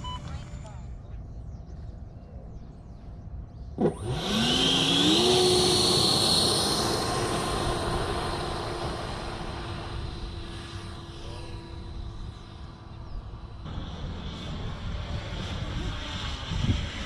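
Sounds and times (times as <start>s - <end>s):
model jet engine whine: 3.7s - 17.0s.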